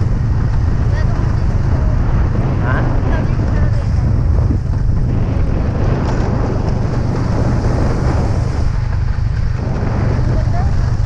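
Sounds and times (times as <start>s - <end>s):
motorcycle engine drone: 0.0s - 11.0s
wind buffeting on microphone: 0.0s - 11.0s.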